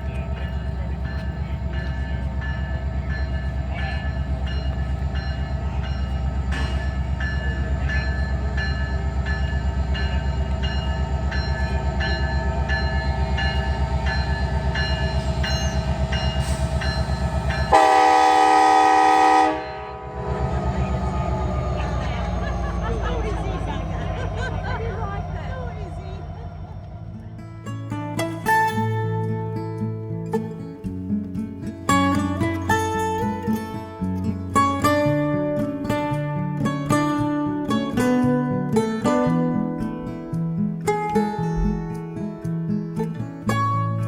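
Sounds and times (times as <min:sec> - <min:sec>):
train rumbling: 0:00.0 - 0:42.4
locomotive horn blast: 0:17.4 - 0:24.0.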